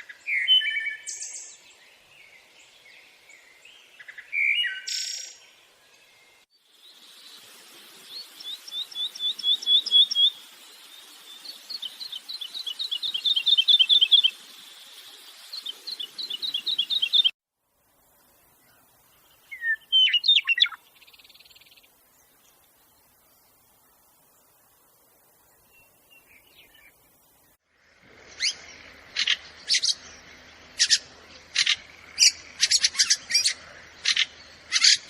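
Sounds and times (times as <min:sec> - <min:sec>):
songbird trilling: 0:11.4 - 0:14.4, 0:15.5 - 0:17.3, 0:19.5 - 0:21.8, 0:28.3 - 0:35.0
short bird chirps: 0:19.5 - 0:21.8.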